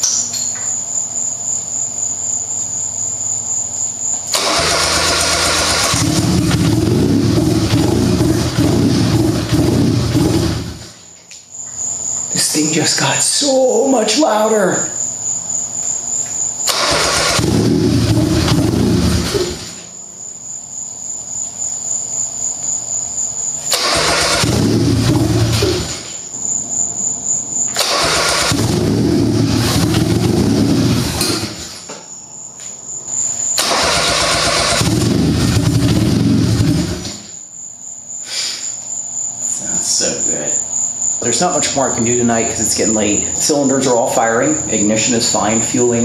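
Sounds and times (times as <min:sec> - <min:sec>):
crickets chirping: 0:00.0 - 0:46.0
engine starting and stalling: 0:04.3 - 0:11.0, 0:16.6 - 0:19.9, 0:23.6 - 0:26.2, 0:27.7 - 0:31.9, 0:33.5 - 0:37.4.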